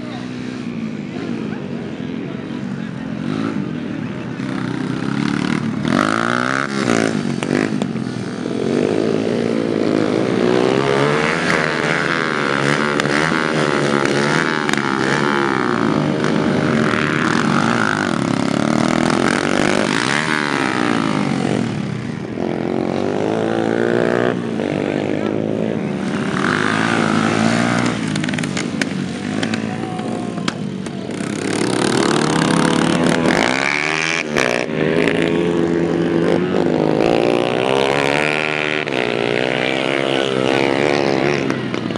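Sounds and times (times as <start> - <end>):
racing motorcycles at full throttle: 0.0 - 41.9.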